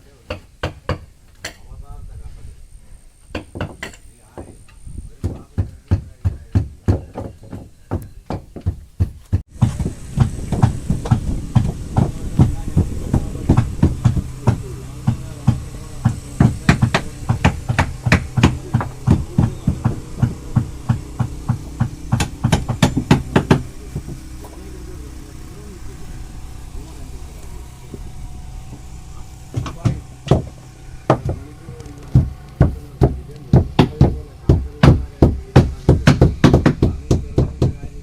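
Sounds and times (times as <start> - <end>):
hammer blows: 3.3 - 38.0
steady low hum: 9.5 - 38.0.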